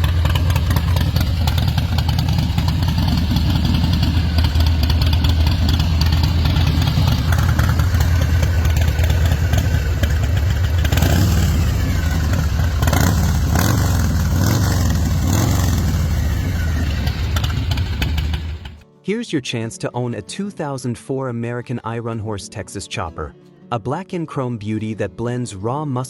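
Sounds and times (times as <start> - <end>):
motorcycle engine idling: 0.0 - 18.8.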